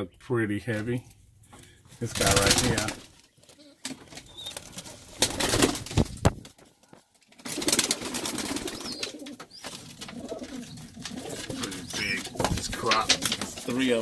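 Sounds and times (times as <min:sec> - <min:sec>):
wings flapping and rustling: 0:01.9 - 0:14.0
pigeons cooing: 0:02.4 - 0:05.8, 0:07.4 - 0:14.0.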